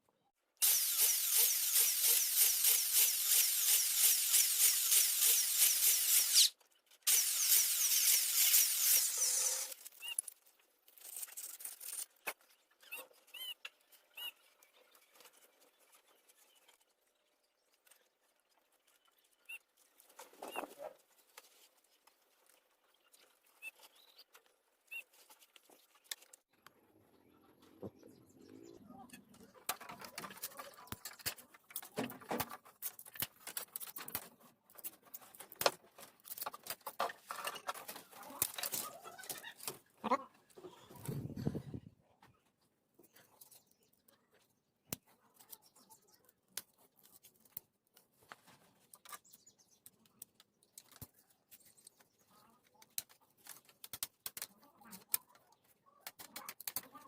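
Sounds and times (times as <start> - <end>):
small power tool whirring: 0.6 - 6.5, 7.1 - 9.9.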